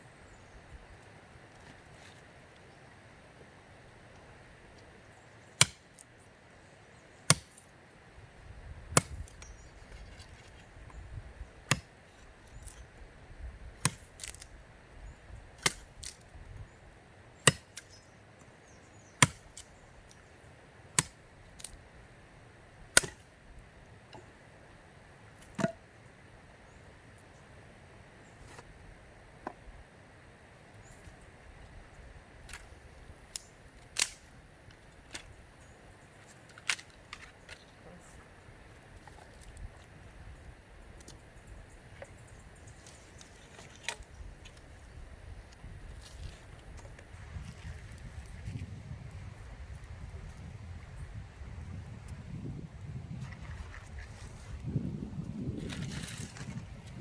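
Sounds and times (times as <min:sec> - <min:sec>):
blade chopping wood: 0:05.6 - 0:06.0, 0:07.3 - 0:07.7, 0:08.9 - 0:09.5, 0:11.6 - 0:12.0, 0:13.8 - 0:14.5, 0:15.6 - 0:16.2, 0:17.4 - 0:18.0, 0:19.2 - 0:19.7, 0:21.0 - 0:21.8, 0:23.0 - 0:23.4, 0:25.4 - 0:25.8.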